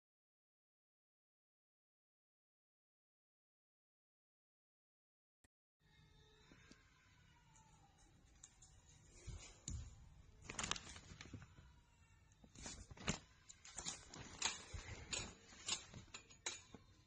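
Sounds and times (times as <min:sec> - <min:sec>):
objects being handled: 0:07.6 - 0:17.0.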